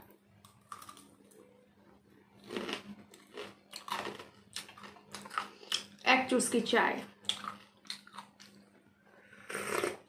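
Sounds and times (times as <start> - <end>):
crunchy fried food being chewed: 0.2 - 1.4, 2.3 - 6.0, 7.1 - 10.0.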